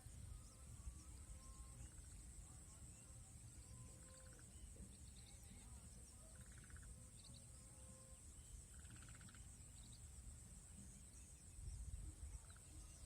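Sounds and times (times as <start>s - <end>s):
high-pitched insect drone: 0.0s - 10.3s.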